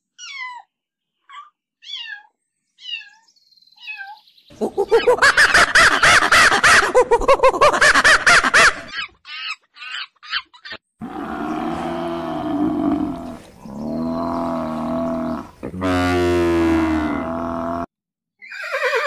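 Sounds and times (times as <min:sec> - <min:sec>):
long low animal calls: 0:11.0 - 0:17.9.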